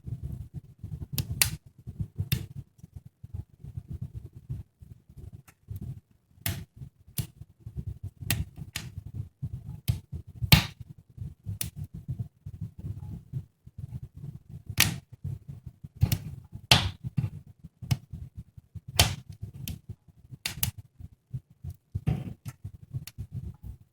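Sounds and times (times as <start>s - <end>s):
wood fire crackling: 0.8s - 1.6s, 8.2s - 9.0s, 9.8s - 10.8s, 14.7s - 15.0s, 16.0s - 18.1s, 18.9s - 20.8s, 21.6s - 23.3s.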